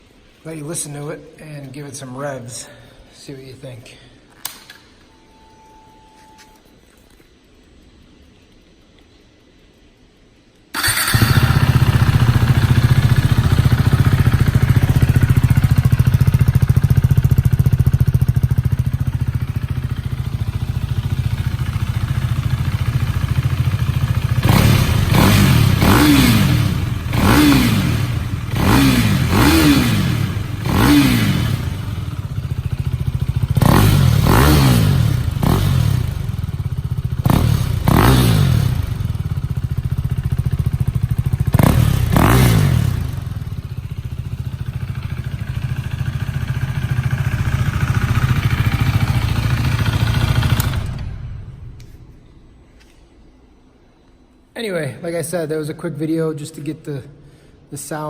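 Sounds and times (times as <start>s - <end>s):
motorcycle engine idling and revving: 10.8s - 52.0s.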